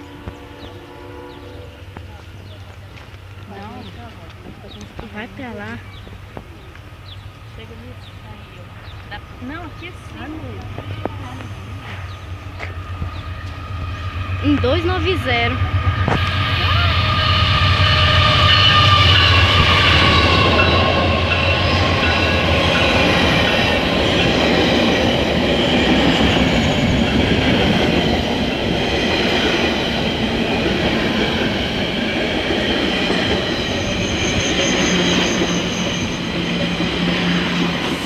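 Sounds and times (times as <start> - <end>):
locomotive drone: 0.0 - 38.0
train wheels on rails: 0.0 - 38.0
high pulsing squeal: 9.0 - 38.0.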